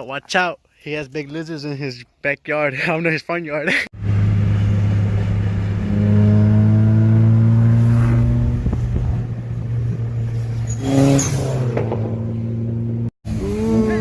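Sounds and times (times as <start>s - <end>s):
car engine droning: 4.0s - 14.0s.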